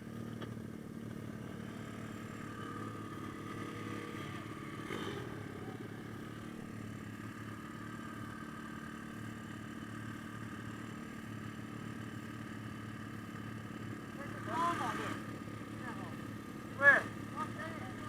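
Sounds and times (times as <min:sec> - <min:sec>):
small motorbike engine idling: 0:00.0 - 0:18.0.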